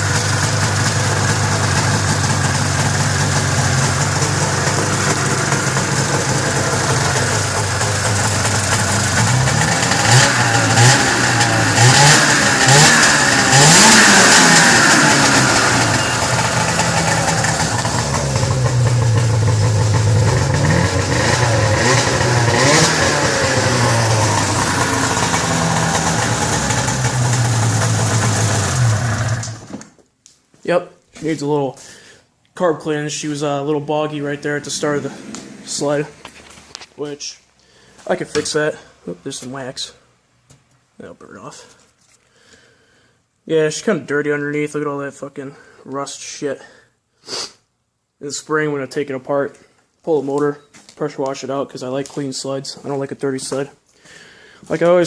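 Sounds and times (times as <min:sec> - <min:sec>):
snowmobile engine revving: 0:00.0 - 0:29.7, 0:34.0 - 0:36.3.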